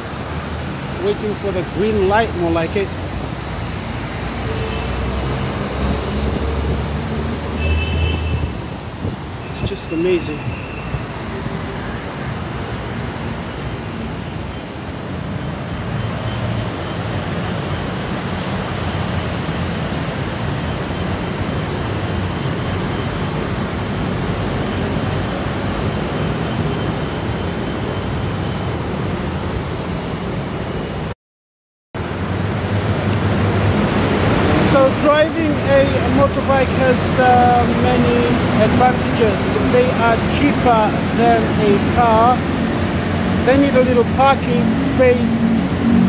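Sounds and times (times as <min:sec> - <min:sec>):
motorbikes and scooters streaming past: 0:03.7 - 0:09.0, 0:40.9 - 0:46.0.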